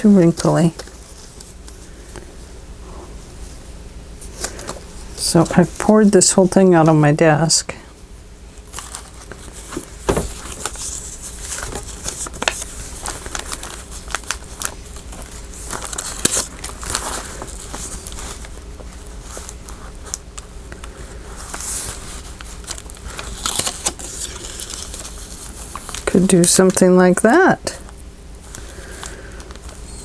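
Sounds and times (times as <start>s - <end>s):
paper rustling and crinkling: 0.1s - 2.3s, 8.6s - 26.8s, 27.8s - 30.0s.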